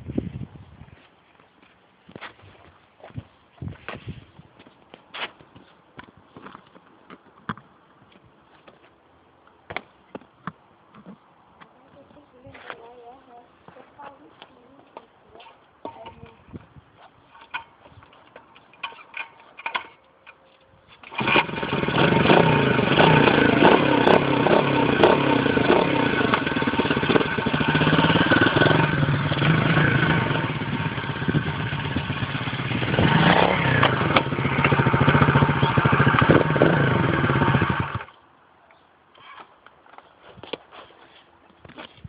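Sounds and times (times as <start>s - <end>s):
dirt bike engine revving: 21.1s - 38.1s.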